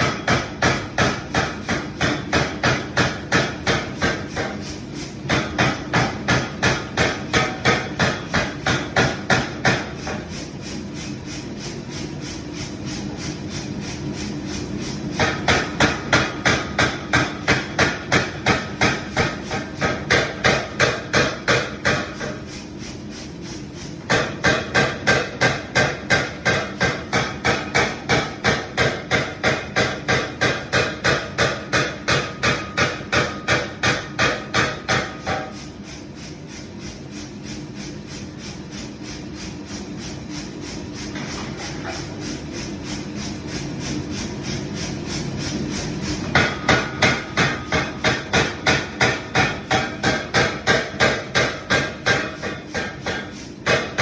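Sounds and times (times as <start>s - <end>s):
hammer striking iron pipe: 0.0s - 10.4s, 15.2s - 22.4s, 24.0s - 35.7s, 46.2s - 54.0s.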